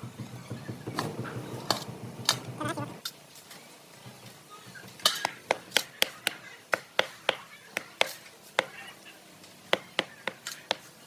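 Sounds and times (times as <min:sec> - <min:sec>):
sharp knocks: 0:00.0 - 0:03.0.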